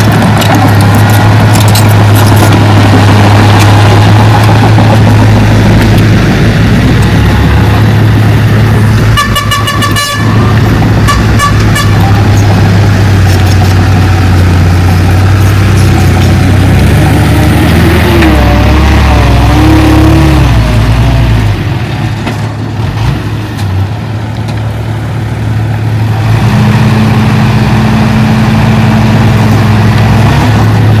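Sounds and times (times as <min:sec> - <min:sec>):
diesel machinery running: 0:00.0 - 0:31.0
vehicle horn: 0:09.0 - 0:12.5.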